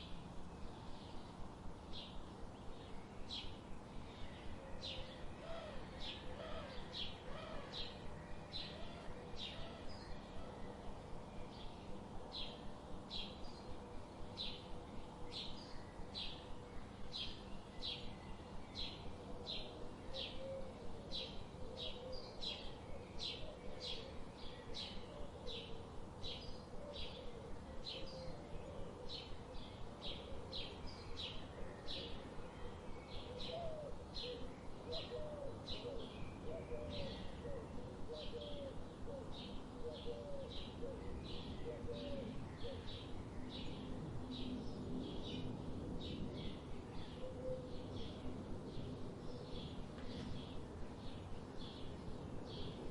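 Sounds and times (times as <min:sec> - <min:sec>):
low background hiss: 0:00.0 - 0:52.9.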